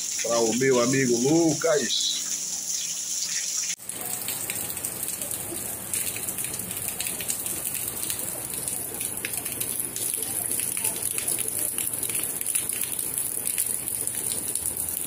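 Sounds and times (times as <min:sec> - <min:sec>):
heavy rain pouring: 0:03.7 - 0:15.0.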